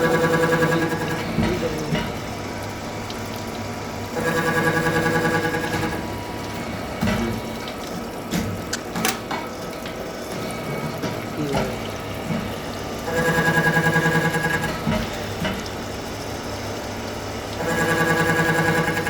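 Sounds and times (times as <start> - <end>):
machine buzzing: 0.0 - 3.1, 3.8 - 7.7, 10.4 - 19.0
milling machine humming: 0.0 - 19.0
sharp clicks and knocks: 7.0 - 10.0.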